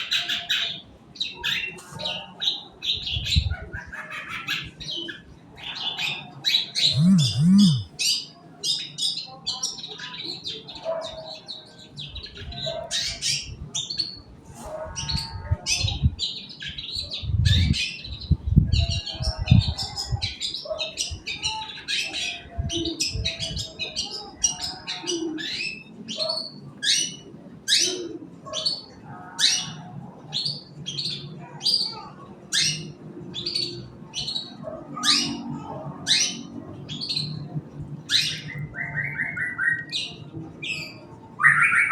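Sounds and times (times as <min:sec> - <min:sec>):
shrike chattering song: 0:06.9 - 0:07.9.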